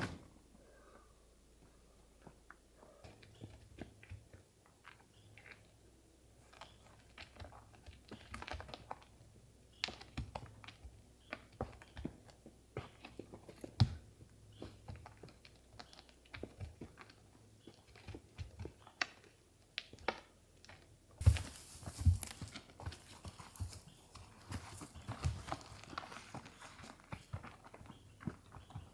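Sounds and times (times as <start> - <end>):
heavy thumps: 0.0 - 0.4
rustling: 0.0 - 0.6, 21.2 - 27.5
footsteps on forest floor: 21.2 - 27.3.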